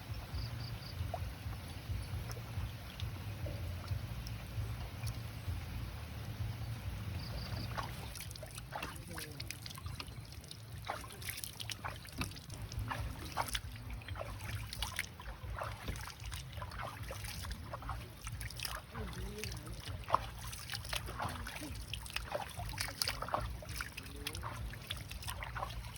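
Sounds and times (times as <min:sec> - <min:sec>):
steady low rumble: 0:00.0 - 0:25.9
raindrops tapping and dripping: 0:07.6 - 0:25.9.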